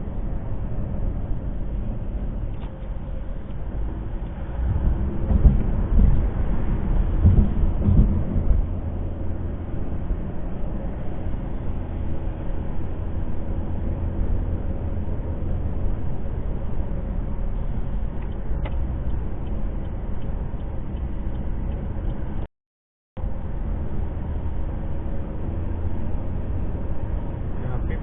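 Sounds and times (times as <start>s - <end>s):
heavy low thumping rumble: 0.0s - 10.9s
car road noise at highway speed: 0.0s - 22.5s, 23.2s - 28.0s.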